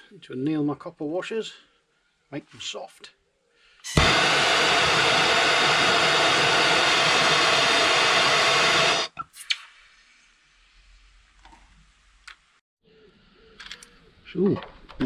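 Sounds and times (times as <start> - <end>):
blowtorch flame hissing: 3.9 - 9.2.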